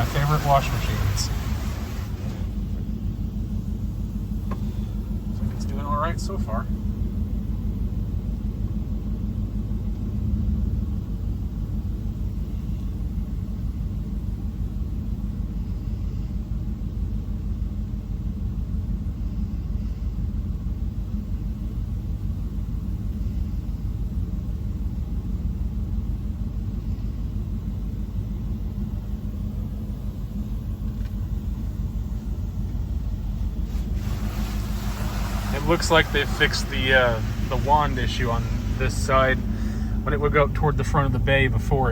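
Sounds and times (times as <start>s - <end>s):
water spraying against truck: 0.0s - 7.0s, 28.0s - 41.9s
idling truck rumble: 0.0s - 41.9s.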